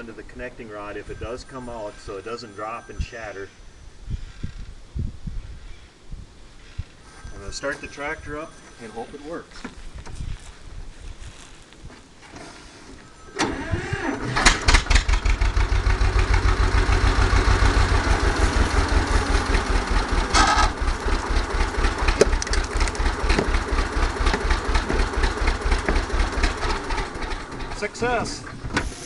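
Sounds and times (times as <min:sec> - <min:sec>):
tractor engine starting and running: 0:13.2 - 0:29.0.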